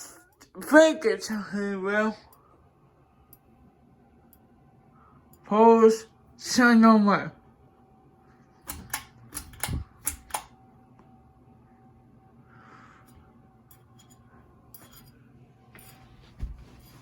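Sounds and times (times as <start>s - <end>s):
ceiling fan humming: 0.0s - 17.0s
sharp clicks: 8.6s - 10.5s.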